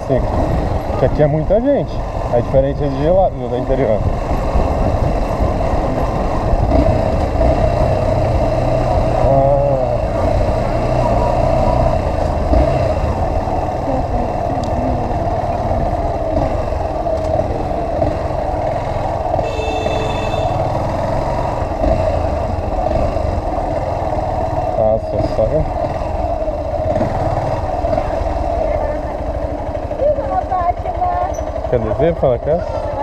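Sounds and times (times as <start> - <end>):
wind rushing over microphone: 0.0 - 19.4
motorcycle cruising: 0.0 - 33.0.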